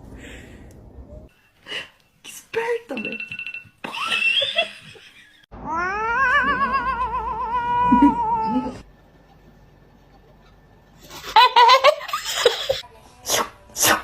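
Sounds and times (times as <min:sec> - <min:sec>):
cat yowling: 0:05.6 - 0:08.8.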